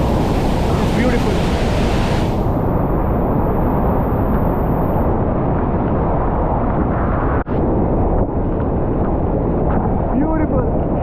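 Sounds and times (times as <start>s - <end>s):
waterfall roaring: 0.0s - 5.0s.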